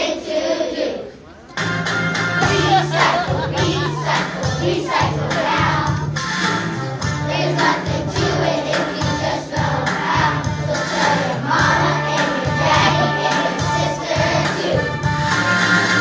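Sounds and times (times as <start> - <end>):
children singing: 0.0 - 1.2, 2.4 - 6.1, 7.2 - 15.1
instrumental accompaniment: 1.5 - 16.0.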